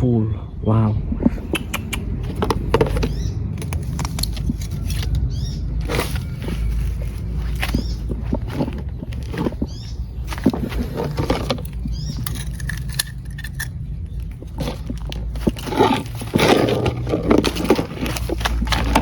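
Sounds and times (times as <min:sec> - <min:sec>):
hands rustling through dry leaves: 0:02.3 - 0:12.1.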